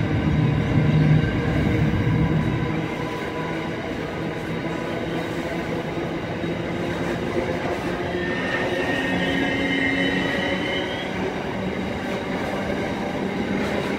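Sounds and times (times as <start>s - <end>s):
train wagons rolling on rails: 0.0s - 13.9s
high wheel squeal: 8.2s - 11.4s.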